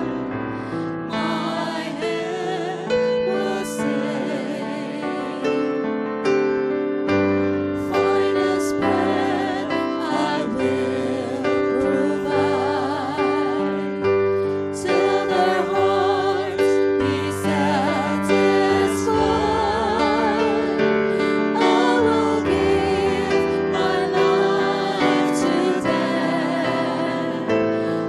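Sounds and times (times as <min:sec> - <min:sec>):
piano playing sustained chords: 0:00.0 - 0:28.0
person singing: 0:00.8 - 0:05.7, 0:07.9 - 0:28.0.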